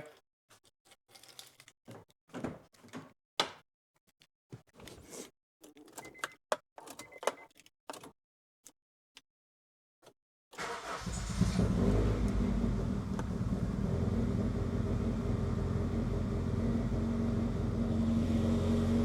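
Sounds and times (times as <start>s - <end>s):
engine starting: 10.6s - 12.6s.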